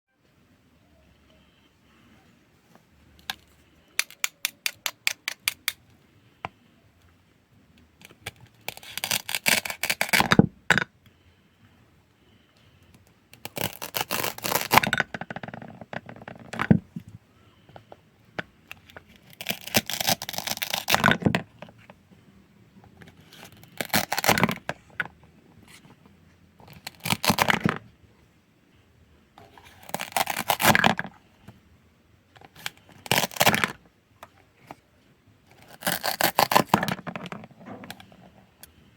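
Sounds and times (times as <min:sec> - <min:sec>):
crackly scraping cuts of food: 0:08.0 - 0:10.3, 0:13.4 - 0:15.0, 0:18.9 - 0:21.2, 0:23.0 - 0:24.8, 0:26.6 - 0:27.7, 0:29.4 - 0:31.1, 0:32.4 - 0:33.8, 0:35.5 - 0:37.3.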